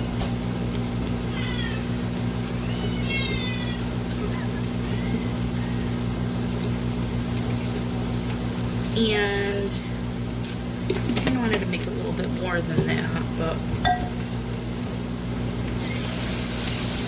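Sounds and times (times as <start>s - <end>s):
air fryer humming: 0.0s - 17.0s
cat meowing: 1.2s - 6.0s.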